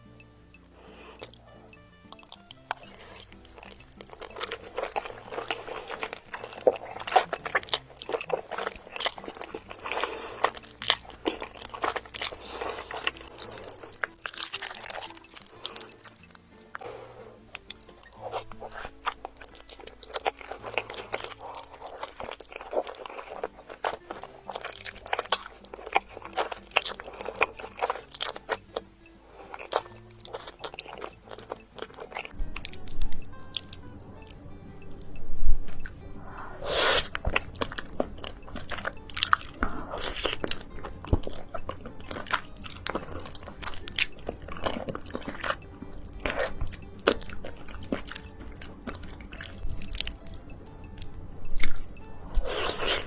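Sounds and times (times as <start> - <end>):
soft background music: 0.0 - 53.0
wet chewing and mouth clicks: 0.0 - 53.0.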